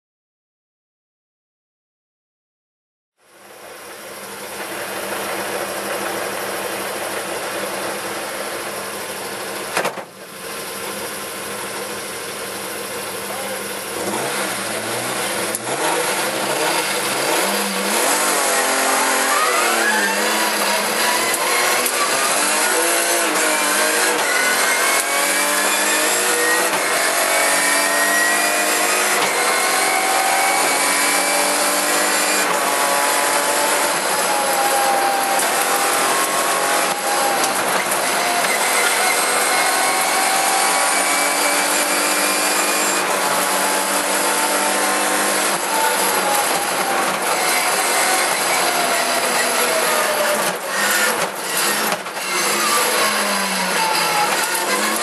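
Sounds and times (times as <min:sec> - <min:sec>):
rally car engine revving: 0:03.7 - 0:55.0.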